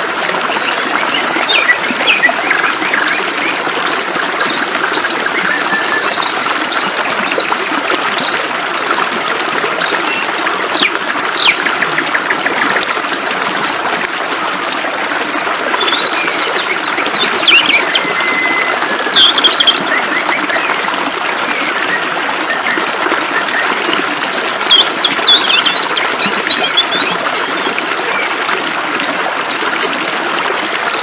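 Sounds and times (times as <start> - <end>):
flowing water rushing: 0.0 - 31.0
birds chirping and trilling: 0.8 - 7.6, 8.2 - 9.0, 9.8 - 14.0, 14.7 - 20.7, 24.2 - 28.2.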